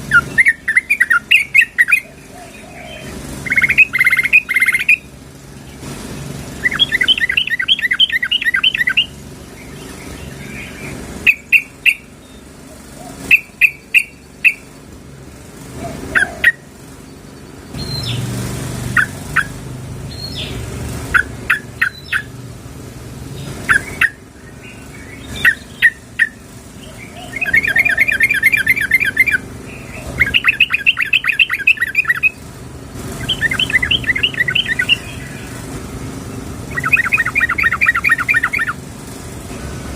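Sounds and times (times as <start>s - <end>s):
bird sharp chirps: 0.0s - 5.8s, 6.6s - 14.7s, 16.1s - 18.3s, 19.0s - 22.4s, 23.4s - 32.4s, 33.1s - 35.7s, 36.3s - 38.8s
bird chattering trills: 0.0s - 14.9s, 15.6s - 22.4s, 23.2s - 39.0s.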